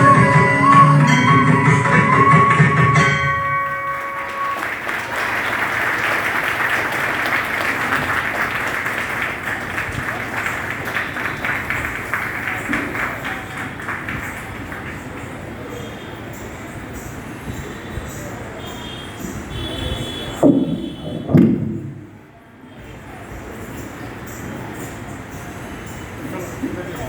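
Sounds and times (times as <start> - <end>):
dance music: 0.0 - 4.9
audience applause: 3.5 - 15.7.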